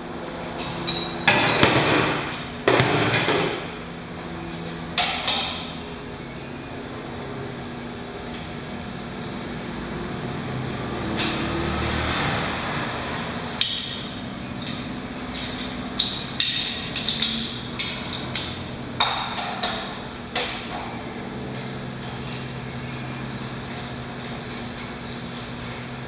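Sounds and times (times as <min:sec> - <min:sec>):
workshop hum: 0:00.0 - 0:26.0
steel tools clinking on metal: 0:13.6 - 0:18.5.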